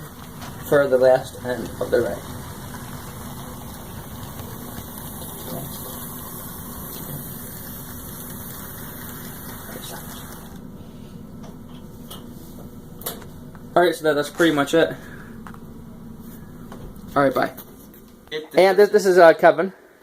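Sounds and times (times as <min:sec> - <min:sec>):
model train motor humming: 0:00.0 - 0:10.6.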